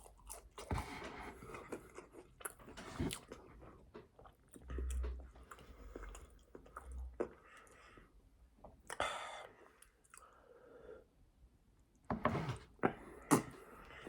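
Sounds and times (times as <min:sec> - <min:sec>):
person chewing crunchy food: 0:00.0 - 0:07.8.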